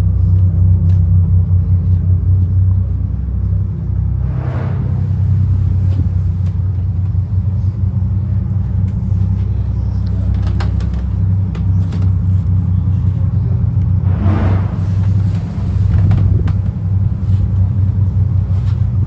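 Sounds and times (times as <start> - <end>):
boat engines droning: 0.0 - 19.0
rushing noise: 4.1 - 6.3, 13.9 - 16.6.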